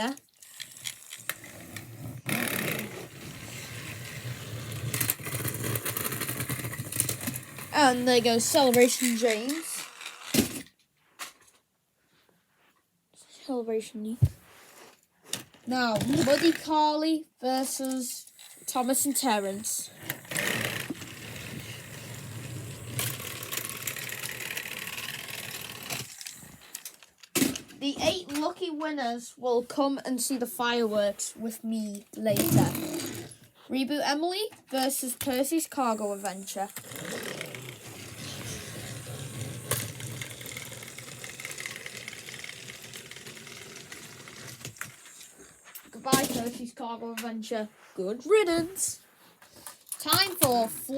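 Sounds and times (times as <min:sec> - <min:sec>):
toy train motors whirring: 0:00.0 - 0:10.7, 0:15.7 - 0:16.9, 0:17.5 - 0:28.5, 0:31.7 - 0:33.4, 0:34.7 - 0:46.6, 0:49.9 - 0:50.9.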